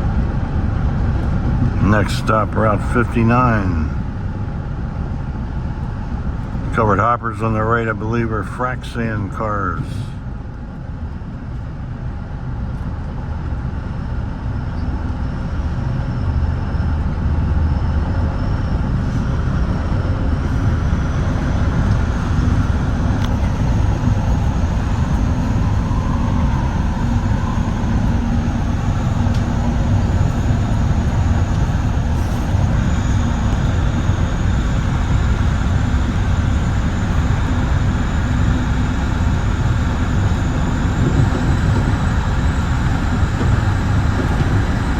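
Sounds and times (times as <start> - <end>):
faint high whine: 13.9 - 44.9
train wheels rumbling on rail: 18.8 - 44.9.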